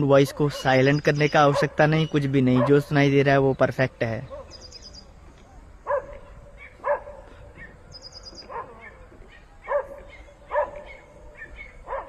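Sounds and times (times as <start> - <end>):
bird chirping trill: 0.6 - 5.2, 7.6 - 8.6
dog barking: 1.4 - 1.8, 2.5 - 2.9, 4.3 - 4.6, 5.8 - 7.8, 8.4 - 12.0.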